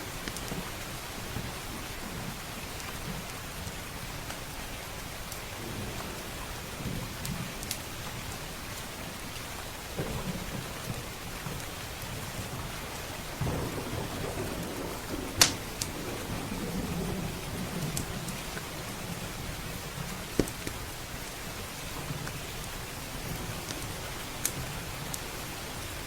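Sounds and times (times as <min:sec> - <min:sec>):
heavy rain: 0:00.0 - 0:26.0
wood fire crackling and popping: 0:00.2 - 0:00.8, 0:02.6 - 0:04.5, 0:06.7 - 0:18.7, 0:19.8 - 0:25.5
low roll of thunder: 0:05.5 - 0:09.0, 0:09.8 - 0:20.6.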